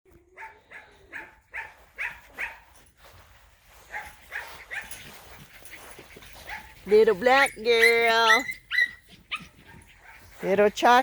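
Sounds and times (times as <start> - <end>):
puppies yipping: 3.9 - 10.6.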